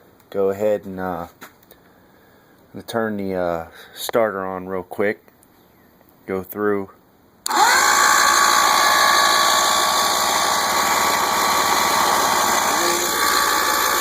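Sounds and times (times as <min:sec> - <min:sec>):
electric starter cranking engine: 0:07.4 - 0:14.0.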